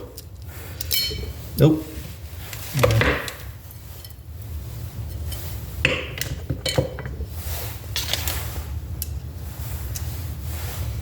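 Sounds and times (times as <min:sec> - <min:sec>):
metal parts and tool clinking: 0:00.0 - 0:01.6
low background hum: 0:00.0 - 0:11.0.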